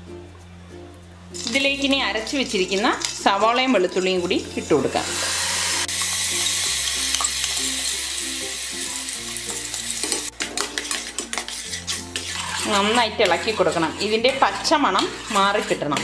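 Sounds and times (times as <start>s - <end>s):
paste sizzling in hot oil: 2.4s - 16.0s
spoon scraping a pan: 8.8s - 16.0s.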